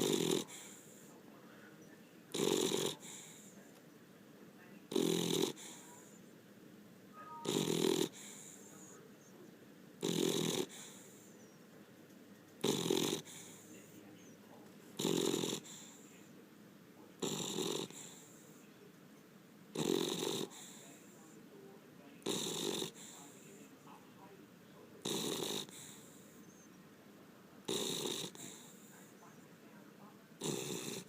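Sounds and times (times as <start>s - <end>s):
dog snoring: 0.0s - 1.1s, 2.3s - 3.6s, 4.9s - 6.2s, 7.4s - 9.3s, 10.0s - 11.6s, 12.6s - 14.4s, 15.0s - 16.3s, 17.2s - 18.6s, 19.7s - 21.4s, 22.2s - 23.6s, 25.0s - 26.7s, 27.6s - 29.4s, 30.4s - 31.0s.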